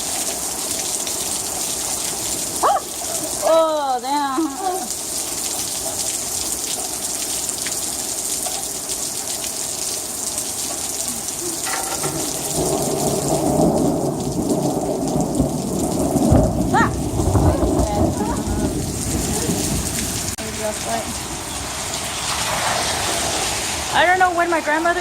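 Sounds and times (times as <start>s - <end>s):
heavy rain falling: 0.0s - 25.0s
rolling thunder rumble: 11.7s - 24.2s.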